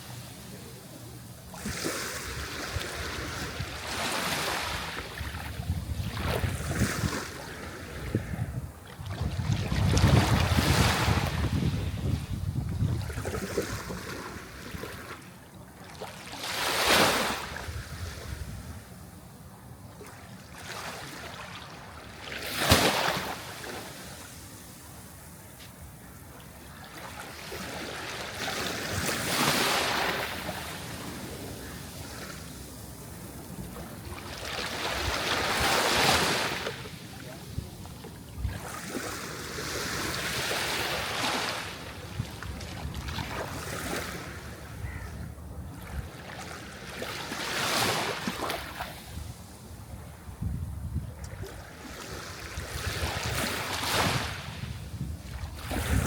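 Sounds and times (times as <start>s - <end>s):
sea waves breaking: 20.0s - 25.2s, 26.4s - 45.0s, 55.2s - 56.0s.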